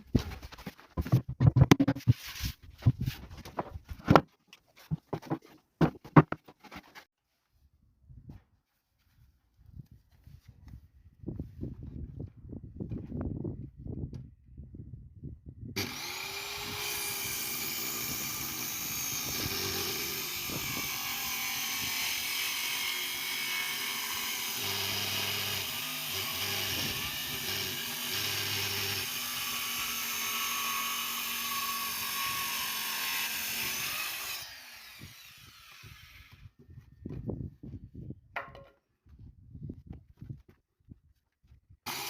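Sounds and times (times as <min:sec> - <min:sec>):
power tool motor running: 0:15.8 - 0:32.1.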